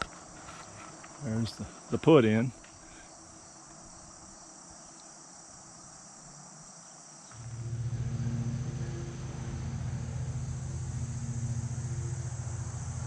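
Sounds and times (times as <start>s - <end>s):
crickets and insects chirping: 0.0s - 13.0s
low motor hum: 7.3s - 13.0s.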